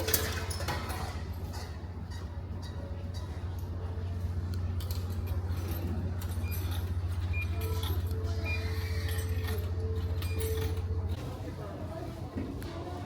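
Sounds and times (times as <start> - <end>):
ship engines droning: 1.2 - 11.8
light clinks and rattles: 4.5 - 11.2.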